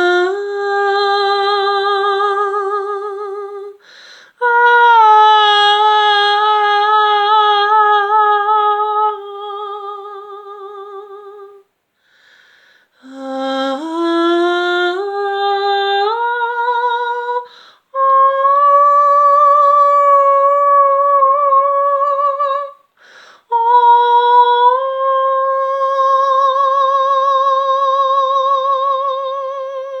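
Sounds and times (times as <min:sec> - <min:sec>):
woman singing wordless notes: 0:00.0 - 0:11.7, 0:13.0 - 0:30.0
singer breathing: 0:03.8 - 0:04.4, 0:11.9 - 0:13.0, 0:17.5 - 0:17.9, 0:23.0 - 0:23.5.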